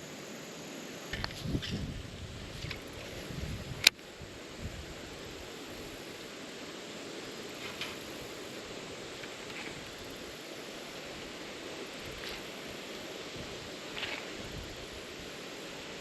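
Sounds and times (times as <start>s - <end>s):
wind: 0.0s - 16.0s
river water rushing: 4.1s - 16.0s.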